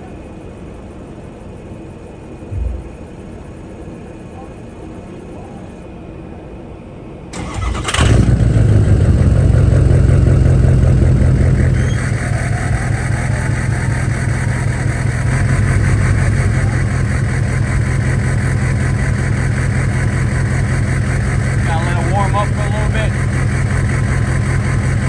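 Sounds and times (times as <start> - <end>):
diesel engine starting and idling: 7.3 - 25.0.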